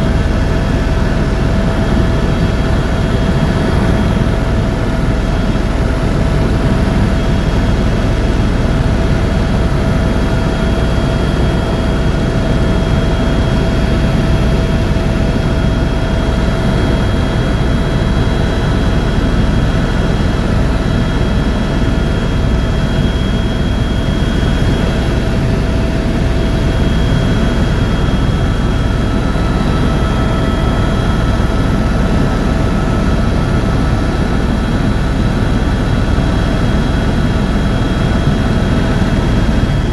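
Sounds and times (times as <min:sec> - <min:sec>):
high whine: 0:00.0 - 0:06.9
helicopter rotor and engine rumble: 0:00.0 - 0:39.9.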